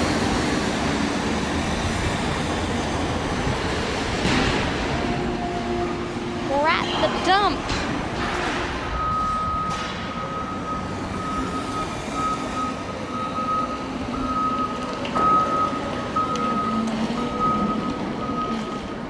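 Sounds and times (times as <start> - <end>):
reversing alarm beeping: 8.8 - 19.0.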